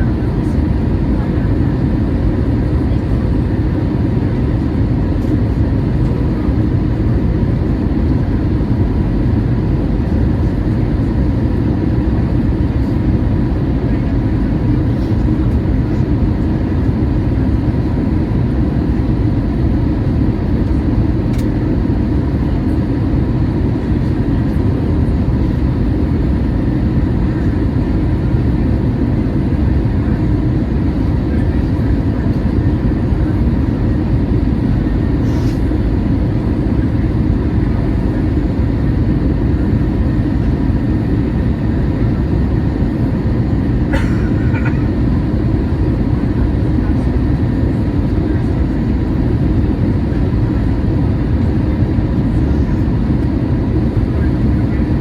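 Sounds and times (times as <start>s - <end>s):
jet engine cabin rumble: 0.0s - 55.0s.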